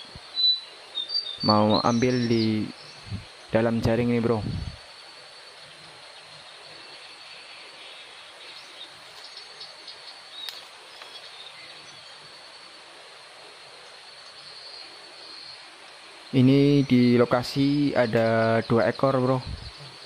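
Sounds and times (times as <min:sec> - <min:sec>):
crickets trilling: 0:00.0 - 0:20.0
faint ticks: 0:10.0 - 0:11.3
sharp click: 0:10.4 - 0:11.1.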